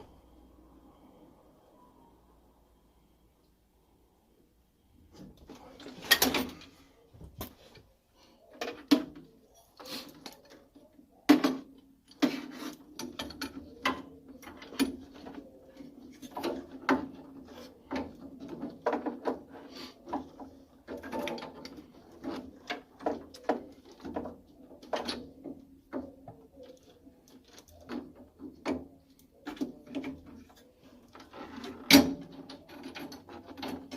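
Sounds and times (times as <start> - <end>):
tools clicking and clattering on metal: 5.4 - 6.8, 8.5 - 33.9.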